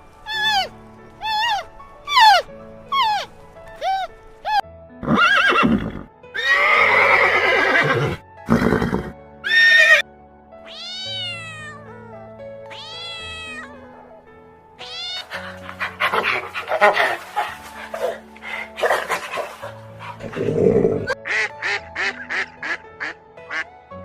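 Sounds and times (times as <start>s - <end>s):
background music: 0.0s - 24.0s
animal calls: 0.3s - 4.6s, 14.8s - 21.2s.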